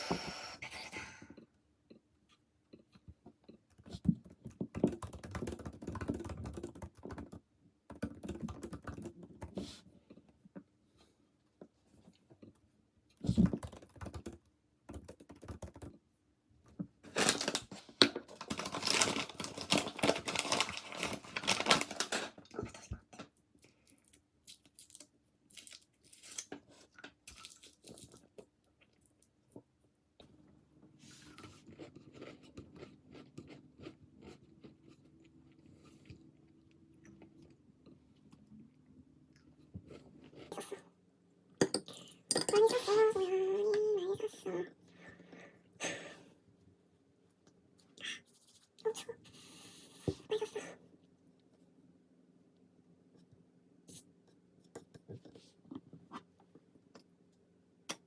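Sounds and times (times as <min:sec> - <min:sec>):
objects rustling and crinkling: 0:17.0 - 0:23.3.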